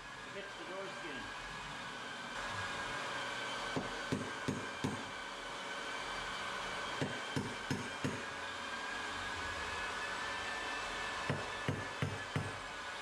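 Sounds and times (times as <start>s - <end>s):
hammer driving nails into wood: 3.7s - 5.1s, 7.0s - 8.3s, 11.2s - 12.6s.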